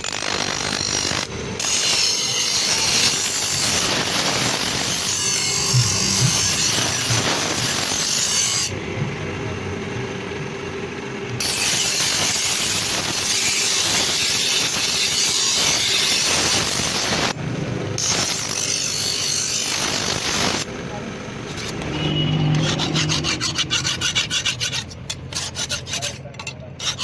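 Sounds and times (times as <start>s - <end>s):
blade rasping scrape: 0.0s - 8.7s, 21.4s - 27.0s.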